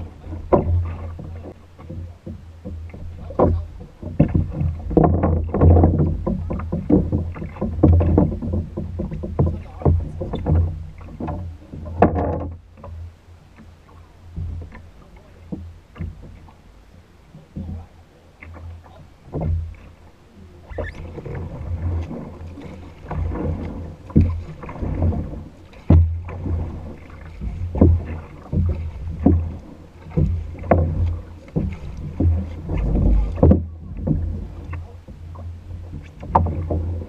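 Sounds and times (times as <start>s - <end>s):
paddle strokes and splashes: 0.0s - 37.0s
steady low rumble: 21.4s - 37.0s.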